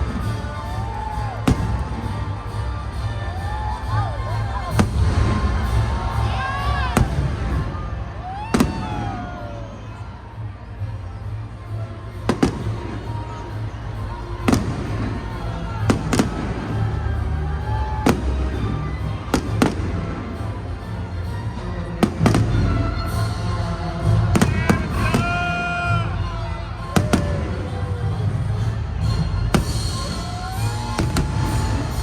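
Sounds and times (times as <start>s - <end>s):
fireworks bangs: 0.0s - 2.4s, 4.7s - 9.8s, 12.3s - 13.2s, 14.4s - 17.0s, 18.0s - 20.6s, 22.0s - 23.2s, 24.2s - 25.6s, 26.9s - 27.8s, 29.5s - 32.0s
music playing: 0.0s - 32.0s.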